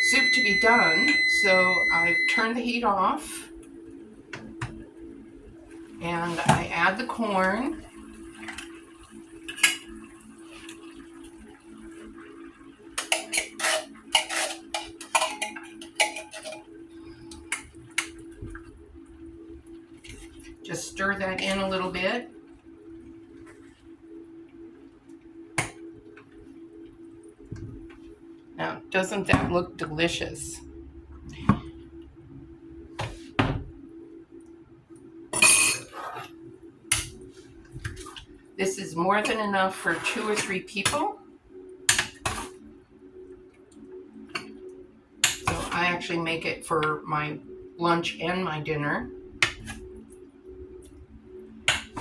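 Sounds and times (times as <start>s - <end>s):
utensil clinking against saucepan: 13.0s - 16.6s
steady low hum: 15.1s - 52.0s.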